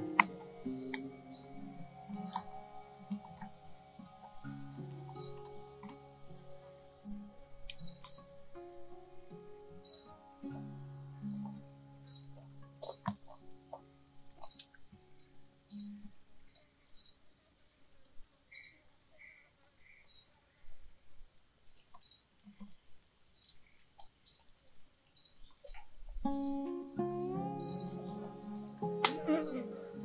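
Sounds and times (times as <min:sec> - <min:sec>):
lower whistled bird notes: 0:00.0 - 0:08.3, 0:09.8 - 0:10.1, 0:26.3 - 0:30.0
small birds chirping: 0:00.0 - 0:08.4, 0:09.1 - 0:10.2, 0:11.1 - 0:20.8, 0:21.6 - 0:30.0.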